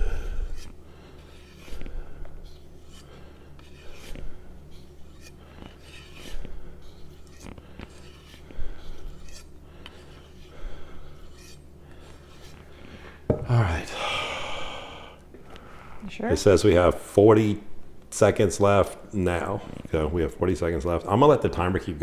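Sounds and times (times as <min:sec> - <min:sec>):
knife rubbing on strop: 0:00.0 - 0:13.4.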